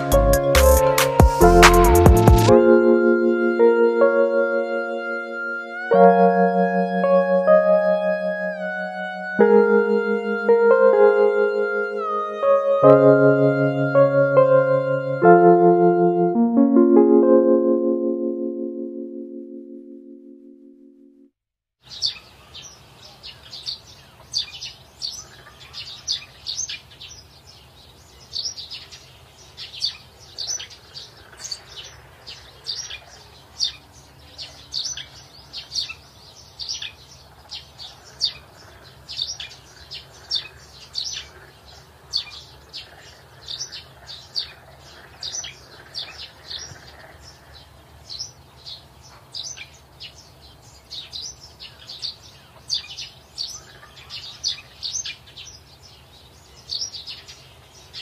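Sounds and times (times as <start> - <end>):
small birds chirping: 21.8 - 58.0.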